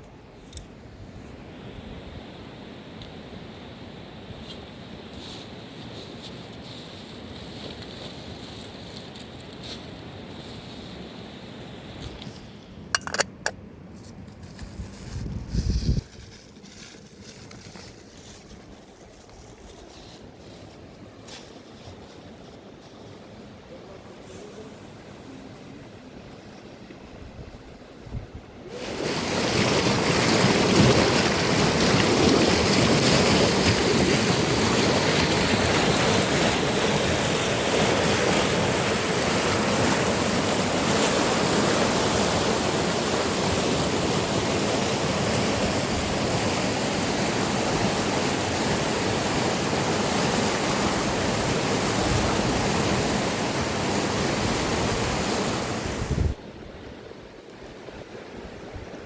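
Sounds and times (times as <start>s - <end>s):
river rushing: 28.7s - 56.4s.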